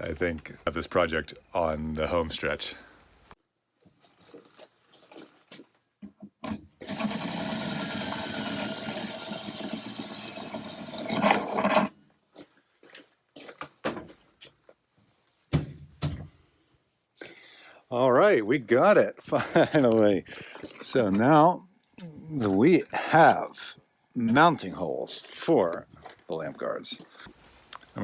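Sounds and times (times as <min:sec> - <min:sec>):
electric drill boring through metal: 0:06.8 - 0:11.9.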